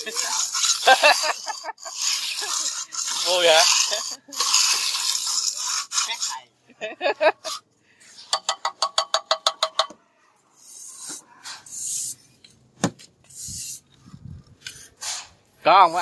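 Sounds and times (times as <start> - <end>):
rapid laughter: 0.0 - 2.9, 6.7 - 7.6
trowel scraping a wall: 0.0 - 9.8, 10.6 - 12.6, 13.2 - 16.0.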